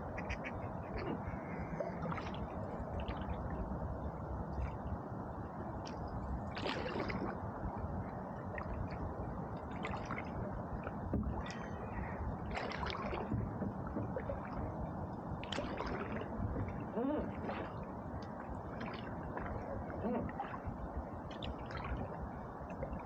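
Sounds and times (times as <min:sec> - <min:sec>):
canoe paddle splashing in water: 0:06.5 - 0:07.4, 0:12.5 - 0:14.6, 0:15.4 - 0:16.3.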